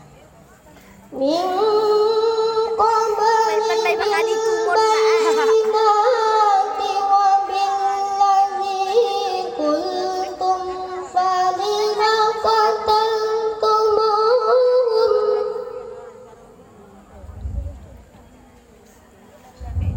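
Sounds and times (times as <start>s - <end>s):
person reciting melodically: 1.1s - 16.0s.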